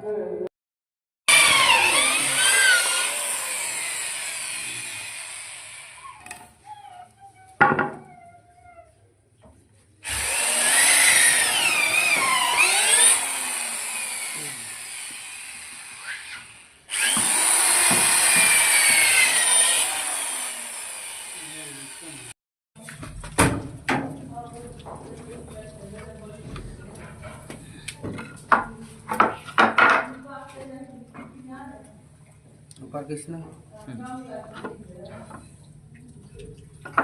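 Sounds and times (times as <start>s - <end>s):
power tool cutting wood: 1.3s - 6.5s, 10.0s - 22.4s.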